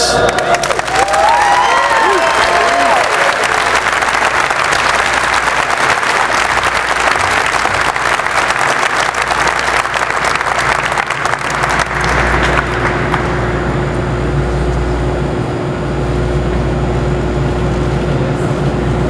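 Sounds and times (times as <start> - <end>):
crowd applauding: 0.0 - 13.9.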